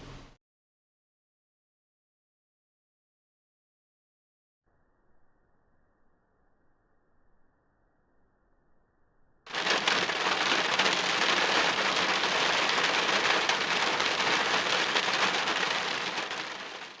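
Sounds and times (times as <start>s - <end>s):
heavy rain falling: 9.5s - 17.0s.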